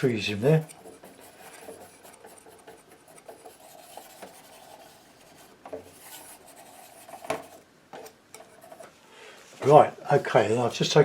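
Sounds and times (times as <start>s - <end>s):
painting knife scraping paint: 0.0s - 7.6s.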